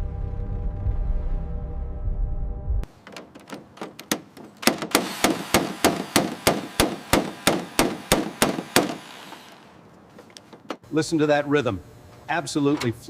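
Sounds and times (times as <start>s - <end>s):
sharp metallic knocks: 2.9s - 9.4s.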